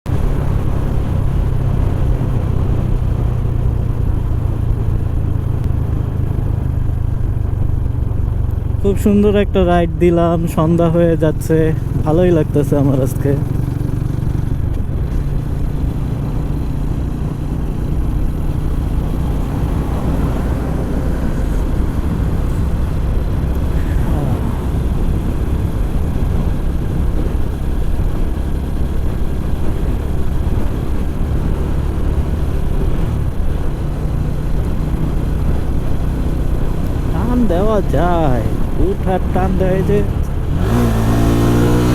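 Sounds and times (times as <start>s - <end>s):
motorcycle engine running: 0.1s - 41.9s
riding noise rush: 14.9s - 27.4s.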